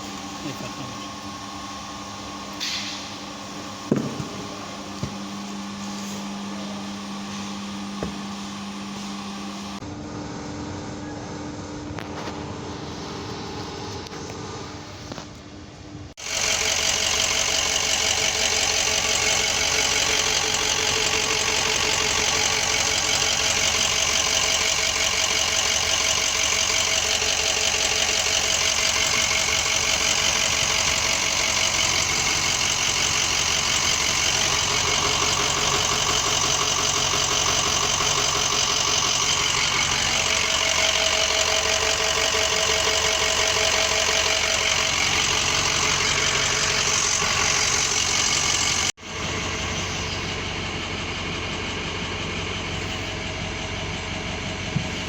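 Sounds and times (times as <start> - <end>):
pickup truck engine idling: 0.0 - 9.8, 16.2 - 55.0.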